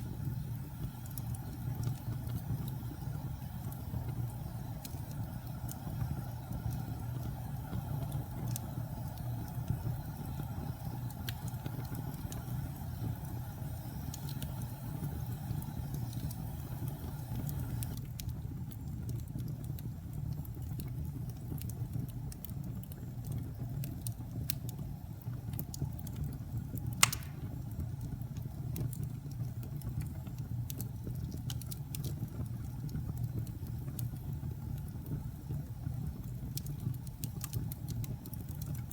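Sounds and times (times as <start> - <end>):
fire crackling: 0.0 - 38.9
low rumble of flames: 0.0 - 38.9
loud pop from fire: 26.9 - 27.7.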